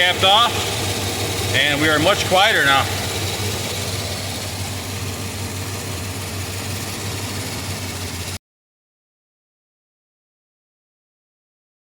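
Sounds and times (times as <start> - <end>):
car engine idling: 0.0 - 8.4.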